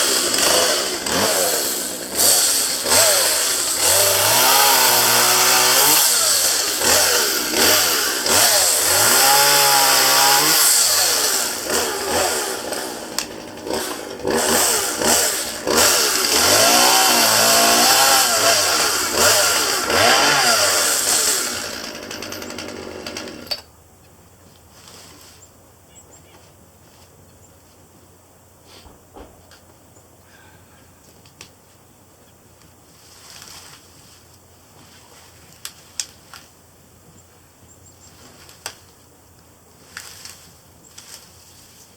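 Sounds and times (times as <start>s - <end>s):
chainsaw cutting branches: 0.0s - 23.7s, 33.0s - 34.0s, 39.8s - 41.9s.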